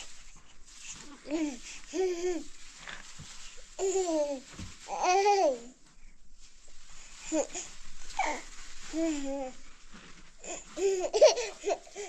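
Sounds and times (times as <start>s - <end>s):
child laughing: 11.0s - 11.9s.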